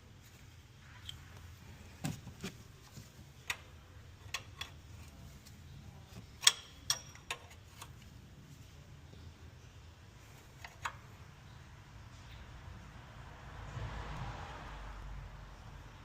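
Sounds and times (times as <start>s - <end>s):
tools and parts clicking and knocking: 2.0s - 8.1s, 10.4s - 11.1s.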